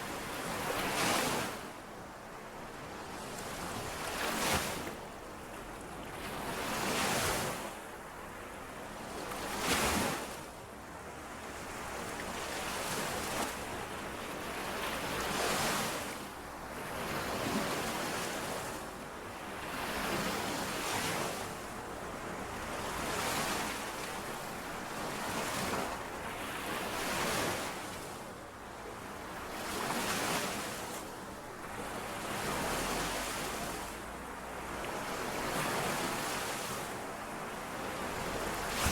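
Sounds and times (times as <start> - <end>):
small waves lapping on shore: 0.0 - 38.9
wind on microphone: 38.3 - 38.9.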